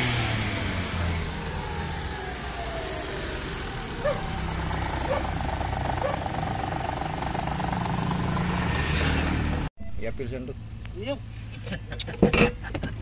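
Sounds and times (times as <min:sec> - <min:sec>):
car engine idling: 0:00.0 - 0:09.7.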